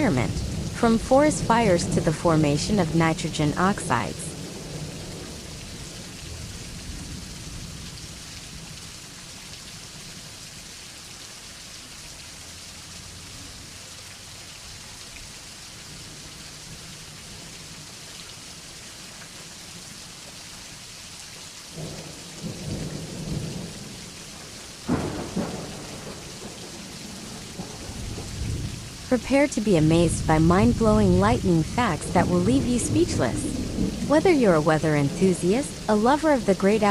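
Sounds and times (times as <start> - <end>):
loud thunderclap: 0.0 - 7.9, 21.8 - 24.0, 24.8 - 29.0, 30.1 - 35.9
thunder rumbling: 0.0 - 8.8, 21.8 - 36.9
steady rain falling: 0.0 - 36.9.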